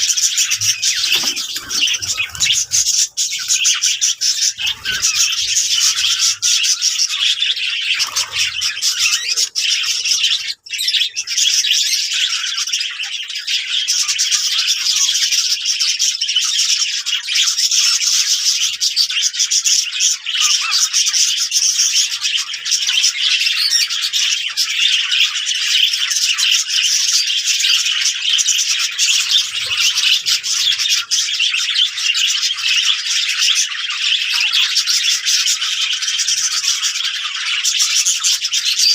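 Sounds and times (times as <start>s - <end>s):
budgerigars chattering: 0.0s - 38.9s.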